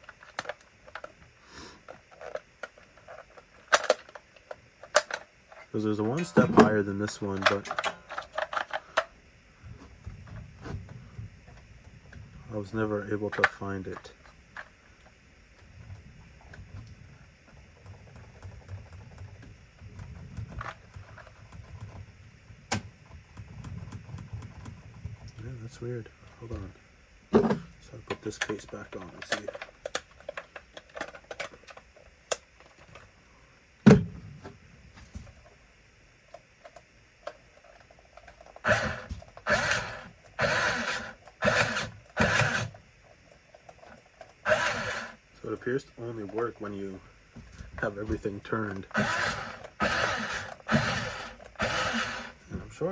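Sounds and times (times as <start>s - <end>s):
toy car motor rattling: 2.1s - 5.7s, 36.7s - 42.8s, 43.7s - 45.2s, 48.8s - 52.4s.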